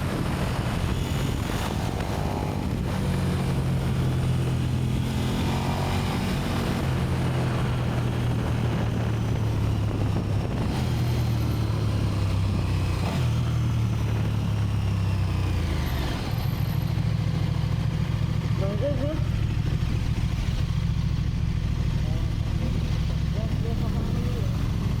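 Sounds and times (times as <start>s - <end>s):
motorcycle engine idling: 11.2s - 25.0s.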